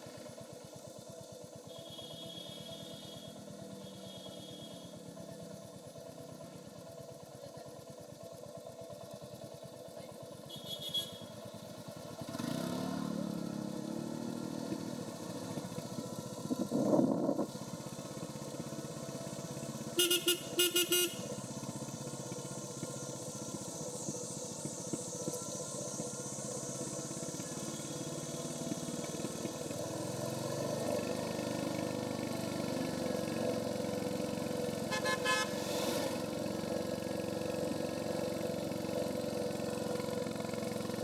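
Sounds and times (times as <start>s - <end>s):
motorcycle engine running: 0.0s - 41.0s
short high beep: 20.0s - 21.3s.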